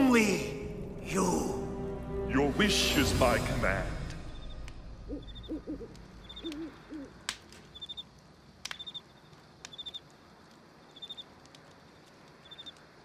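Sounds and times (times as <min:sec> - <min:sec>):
crickets chirping: 0:03.1 - 0:13.0
owl hooting: 0:04.3 - 0:08.1.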